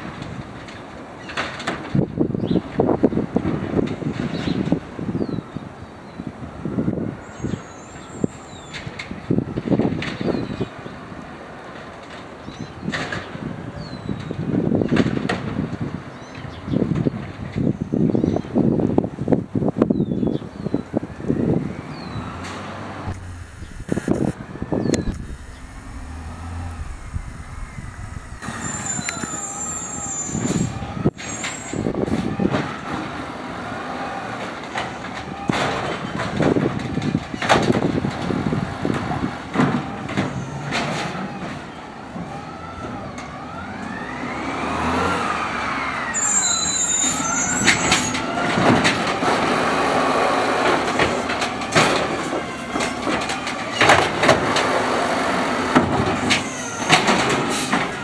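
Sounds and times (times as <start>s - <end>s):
hydraulics whining: 21.2s - 32.0s
truck engine idling: 23.0s - 30.8s.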